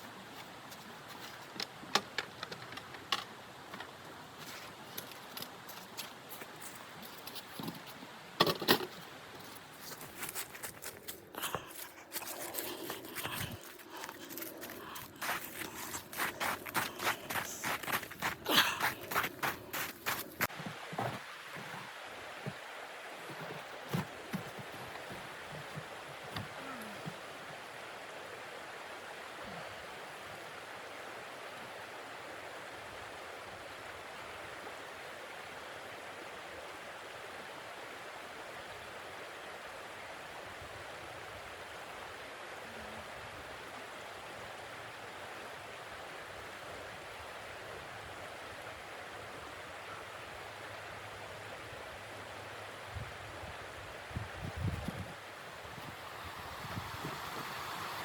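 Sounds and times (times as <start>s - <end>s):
steady rushing hiss: 50.4s - 58.0s.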